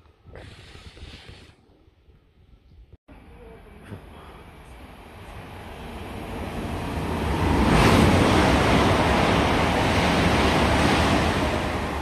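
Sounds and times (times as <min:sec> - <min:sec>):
train rushing past: 0:04.9 - 0:12.0.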